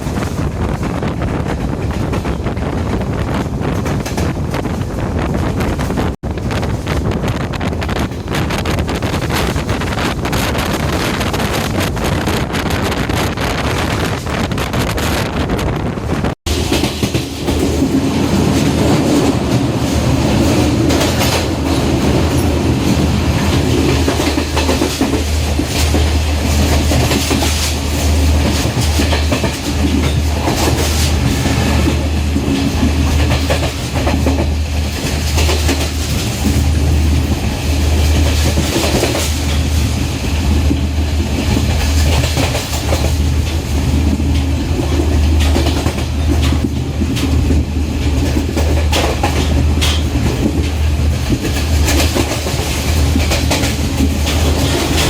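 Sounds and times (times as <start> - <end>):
train rumble: 0.0 - 55.0
train wheels clattering over joints: 16.5 - 55.0.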